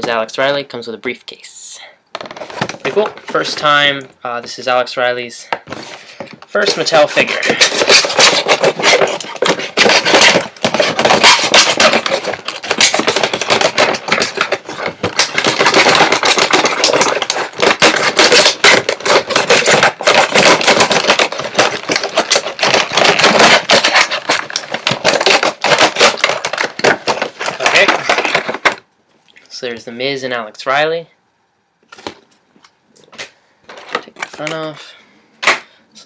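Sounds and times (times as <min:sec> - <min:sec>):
packaging crackling and rustling: 0:05.7 - 0:28.9.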